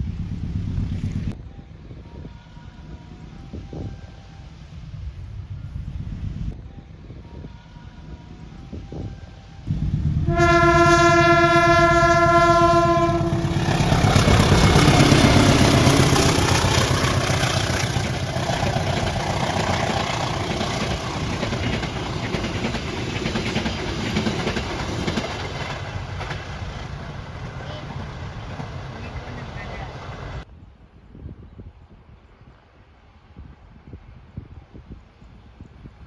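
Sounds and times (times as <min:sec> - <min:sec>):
train rumbling past: 0:00.0 - 0:30.5
train horn blast: 0:09.7 - 0:19.7
wheels clattering on rails: 0:13.1 - 0:30.4.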